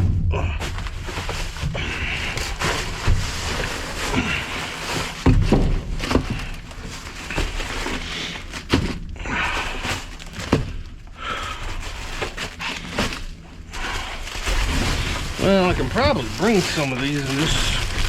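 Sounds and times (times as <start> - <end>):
boxes knocking and thudding: 0.0 - 18.0
plastic packaging rustling: 0.6 - 18.0.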